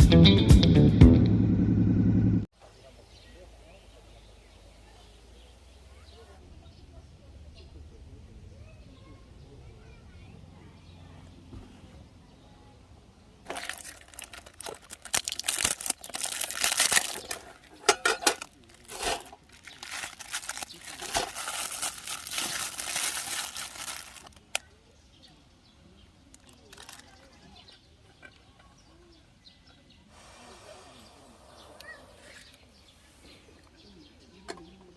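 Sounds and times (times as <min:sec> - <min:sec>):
plastic packaging crumpling: 0:13.5 - 0:24.6, 0:26.4 - 0:27.1.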